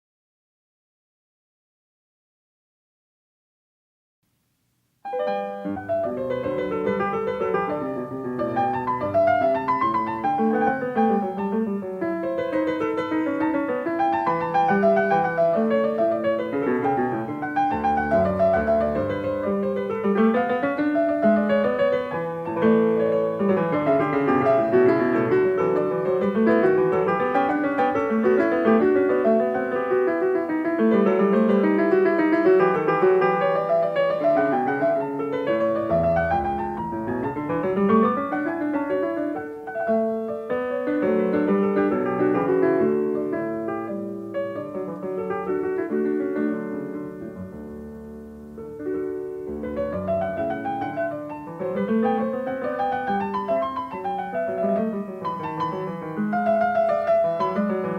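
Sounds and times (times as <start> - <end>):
solo piano music: 4.6 - 57.9.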